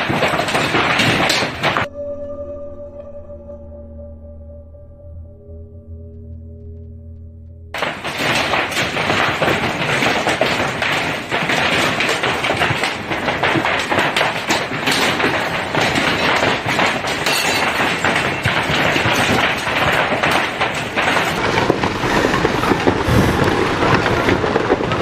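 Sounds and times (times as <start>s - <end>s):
dense clatter of small impacts: 0.0s - 1.9s, 7.8s - 25.0s
soft music: 1.9s - 7.8s.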